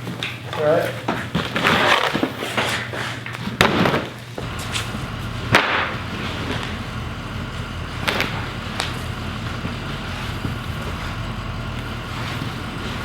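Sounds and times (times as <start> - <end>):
sharp thumps: 4.4 - 13.0
vehicle engine running: 4.4 - 13.0.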